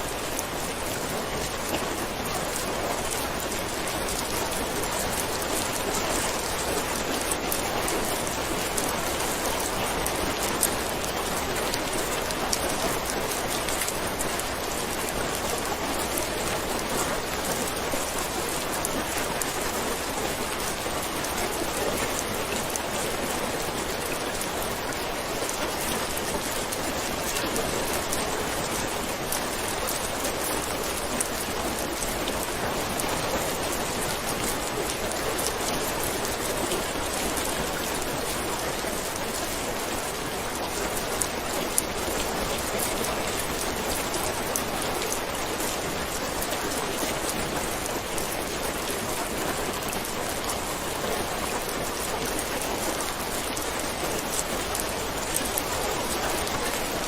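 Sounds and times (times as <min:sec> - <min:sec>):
heavy rain pattering: 0:00.0 - 0:57.0.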